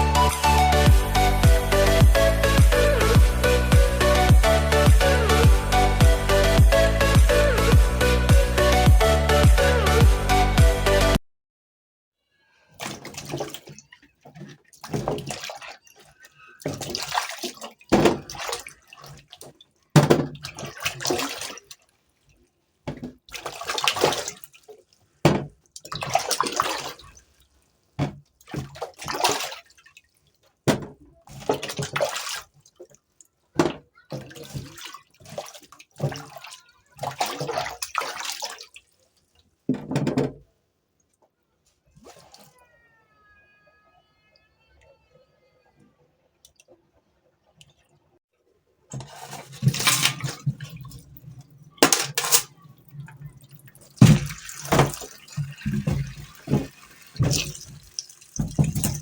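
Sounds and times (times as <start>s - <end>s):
water splashing at a sink: 12.7s - 41.3s, 41.9s - 42.9s, 48.9s - 59.0s.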